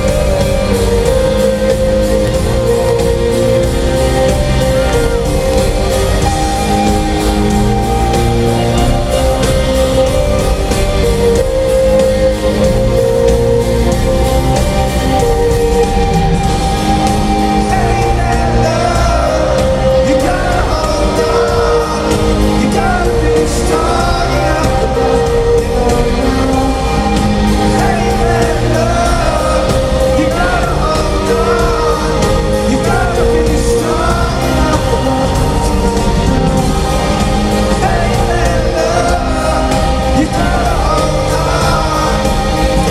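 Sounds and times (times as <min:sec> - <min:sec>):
live rock band playing: 0:00.0 - 0:42.9
person singing: 0:00.0 - 0:42.9.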